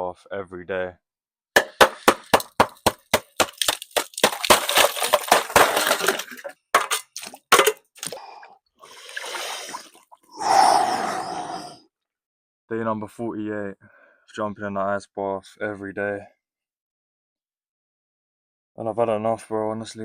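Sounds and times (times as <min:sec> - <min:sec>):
ice cracking and clinking: 0:02.4 - 0:08.2
water sloshing and splashing: 0:03.4 - 0:10.3.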